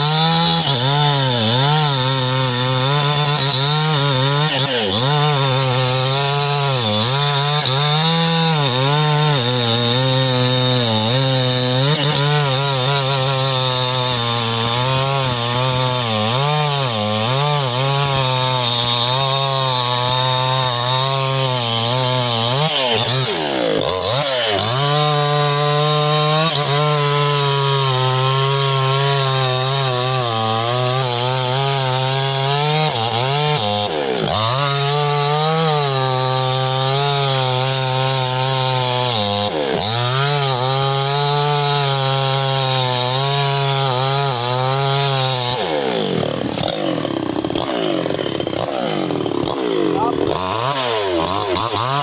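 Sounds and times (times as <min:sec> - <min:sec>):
chainsaw cutting wood: 0:00.0 - 0:52.0.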